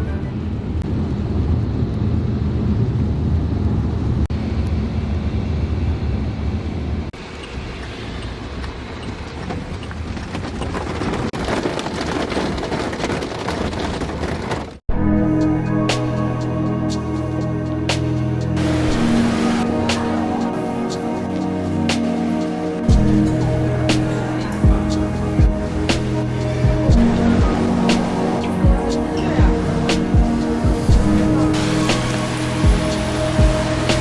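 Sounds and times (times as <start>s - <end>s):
traffic rumble: 0.0s - 14.8s, 15.9s - 34.0s
rain hiss: 18.5s - 34.0s.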